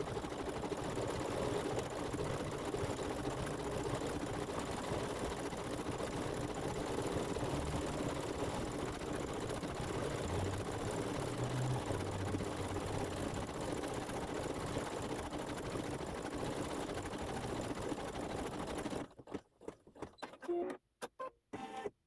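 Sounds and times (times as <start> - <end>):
embroidery machine stitching: 3.2 - 20.8.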